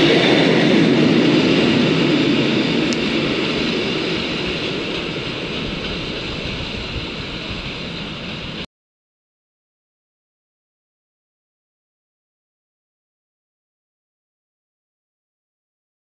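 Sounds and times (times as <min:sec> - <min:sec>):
train wheels rushing on rails: 0:00.0 - 0:08.7.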